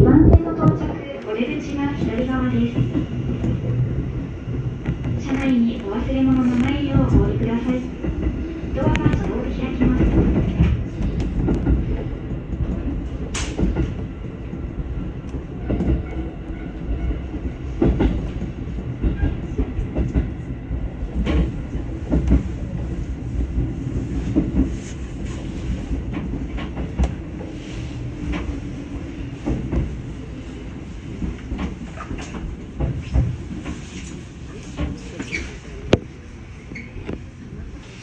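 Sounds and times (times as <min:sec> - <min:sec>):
low train rumble: 0:00.0 - 0:38.0
train wheels clacking on rail joints: 0:04.8 - 0:14.1, 0:15.3 - 0:20.5, 0:21.1 - 0:36.1.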